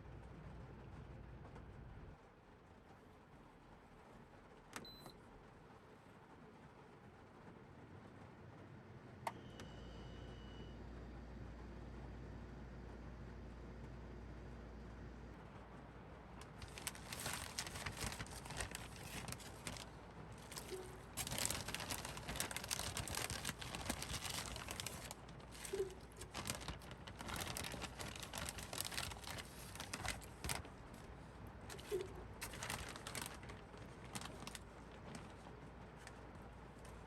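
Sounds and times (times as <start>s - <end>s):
crinkling: 16.3s - 37.0s.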